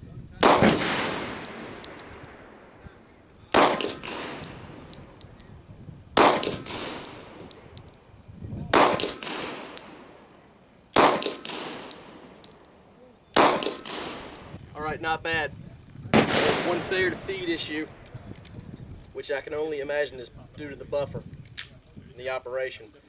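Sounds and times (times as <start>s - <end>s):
pistol shots: 0.4s - 5.6s, 6.2s - 8.1s, 8.7s - 14.6s, 16.1s - 18.4s
light metallic pings: 1.4s - 5.6s, 6.4s - 8.2s, 9.0s - 10.6s, 11.4s - 14.6s.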